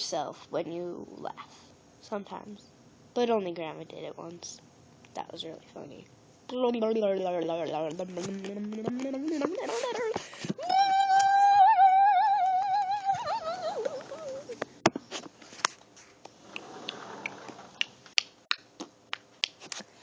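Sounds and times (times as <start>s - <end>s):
child singing high note: 9.3s - 14.5s.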